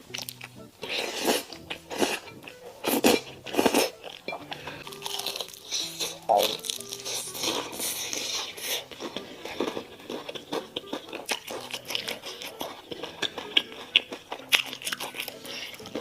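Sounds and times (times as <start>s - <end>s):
crunchy bites and chewing: 0.0s - 16.0s.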